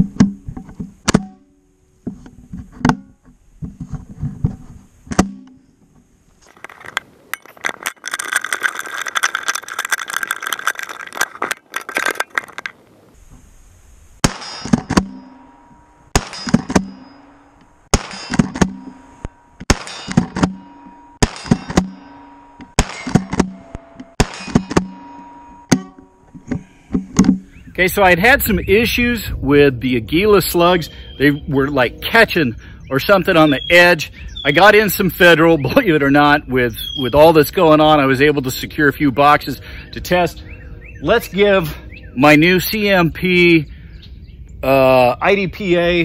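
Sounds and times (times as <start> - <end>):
rustling handling noise: 6.3 - 13.5
shotgun pump clacking: 6.5 - 12.8
shotgun firing: 14.2 - 15.2, 16.1 - 17.0, 17.9 - 18.8, 19.7 - 20.6, 21.2 - 22.0, 22.8 - 23.6, 24.2 - 24.9.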